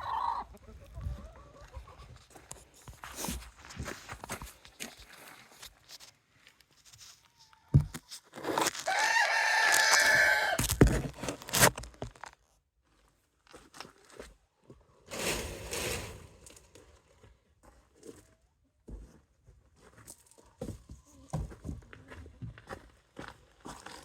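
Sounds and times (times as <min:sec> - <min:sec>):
rooster crowing: 0:08.8 - 0:10.6
rustling: 0:15.1 - 0:17.0.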